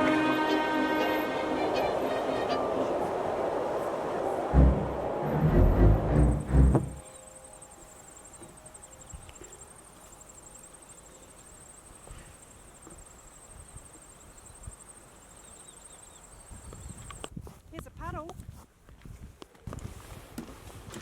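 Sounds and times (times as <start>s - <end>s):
insects chirring: 6.2s - 17.2s.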